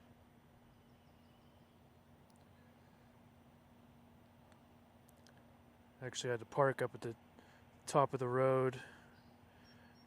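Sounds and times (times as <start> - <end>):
faint hum and hiss: 0.0 - 10.0
very faint ticks: 2.2 - 2.6, 4.2 - 5.5.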